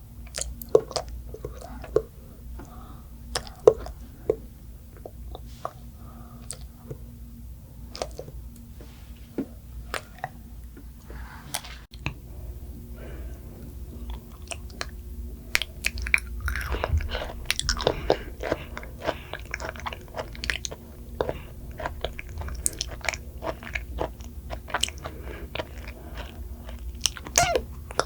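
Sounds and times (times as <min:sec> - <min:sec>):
person chewing and crunching food: 0:00.0 - 0:28.0.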